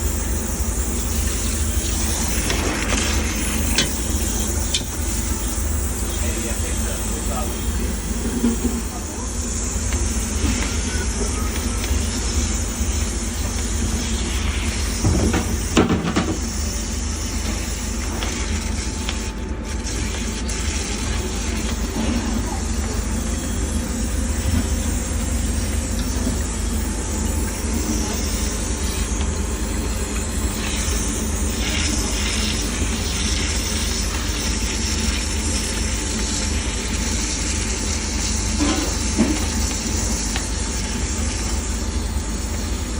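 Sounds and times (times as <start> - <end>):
machine rumbling with hiss: 0.0 - 42.9.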